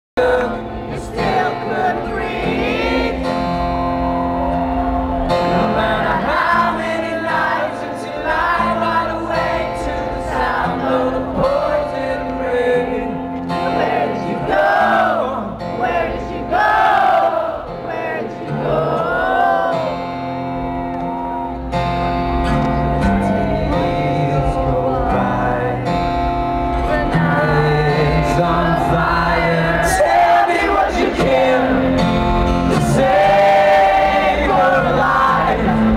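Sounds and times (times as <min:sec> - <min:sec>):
man singing: 0:00.2 - 0:03.1, 0:05.4 - 0:16.5, 0:22.8 - 0:26.1, 0:26.8 - 0:35.9
keyboard chords: 0:00.2 - 0:35.9.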